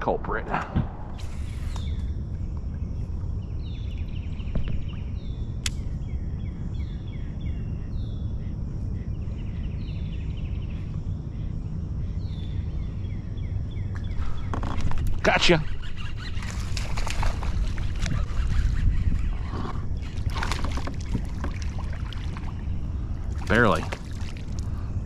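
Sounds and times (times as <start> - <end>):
low rumble: 0.0 - 15.3
songbird singing: 0.0 - 25.0
sharp click: 5.6 - 5.8.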